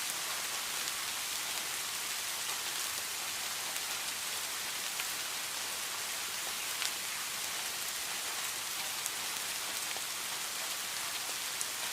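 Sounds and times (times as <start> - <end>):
heavy rain: 0.0 - 11.9.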